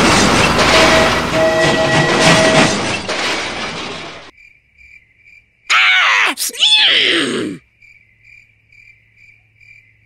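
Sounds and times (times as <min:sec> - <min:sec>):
train rattling on rails: 0:00.0 - 0:04.3.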